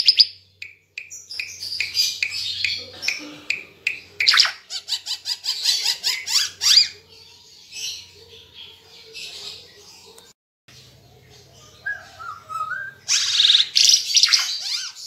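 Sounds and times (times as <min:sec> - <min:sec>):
bird singing chattering notes: 0:00.0 - 0:06.9.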